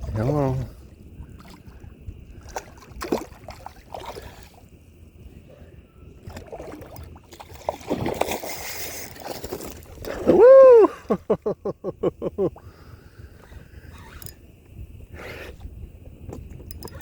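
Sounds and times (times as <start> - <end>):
water splashing and sloshing: 0.0 - 10.5
person whooping: 10.2 - 11.2.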